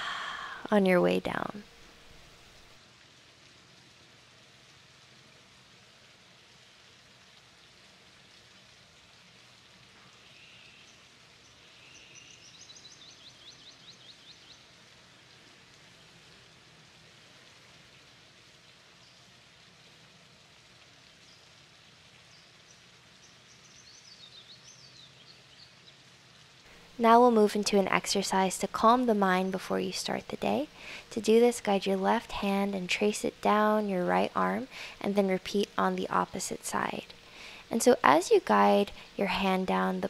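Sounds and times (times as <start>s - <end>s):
faint steady hiss: 0.0s - 40.0s
bird chirping: 11.7s - 14.6s.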